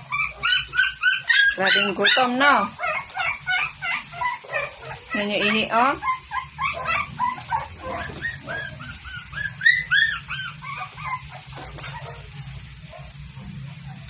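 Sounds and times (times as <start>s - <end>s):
dog yipping and whining: 0.0s - 12.4s.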